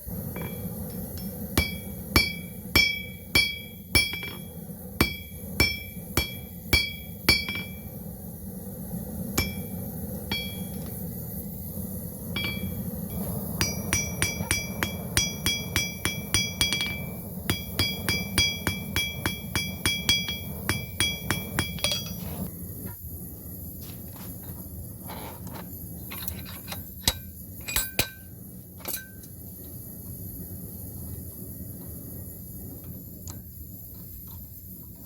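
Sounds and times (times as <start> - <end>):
steady low hum: 0.0 - 35.0
hammer striking steel on anvil: 0.3 - 7.9, 9.4 - 10.9, 12.4 - 12.8, 13.6 - 22.4, 27.0 - 28.3, 28.9 - 29.3.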